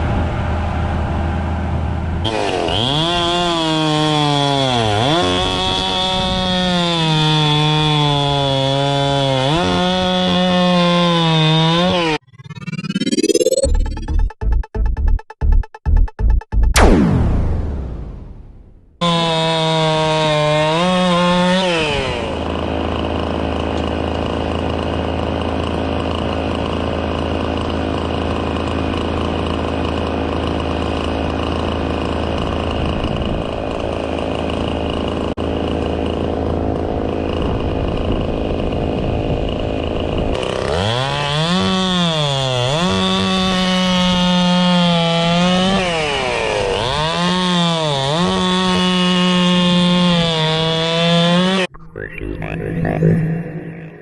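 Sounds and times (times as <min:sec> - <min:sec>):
chainsaw cutting wood: 0:02.2 - 0:12.2, 0:19.0 - 0:51.7.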